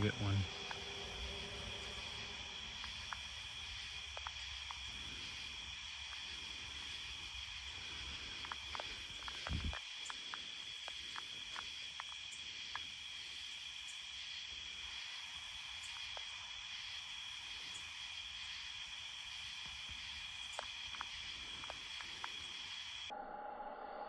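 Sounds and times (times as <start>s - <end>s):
faint clicks: 0.0s - 1.0s, 2.7s - 12.9s, 19.6s - 23.1s
crickets trilling: 0.0s - 23.1s.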